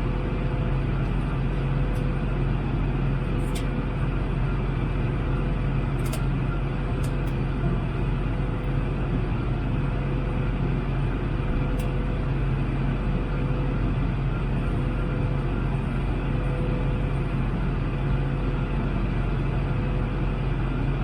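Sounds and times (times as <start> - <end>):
airplane cabin roar: 0.0 - 21.0
constant low hum: 0.0 - 21.0.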